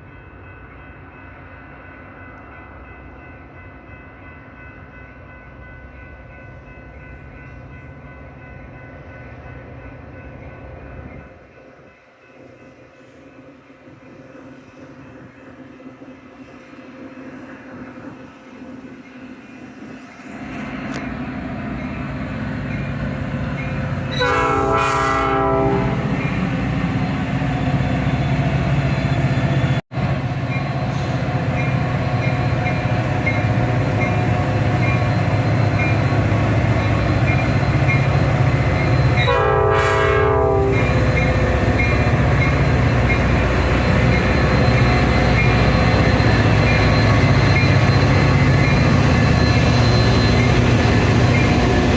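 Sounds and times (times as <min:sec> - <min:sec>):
train rumbling: 0:00.0 - 0:51.9
train air horn blasts: 0:24.1 - 0:26.2, 0:39.2 - 0:41.2.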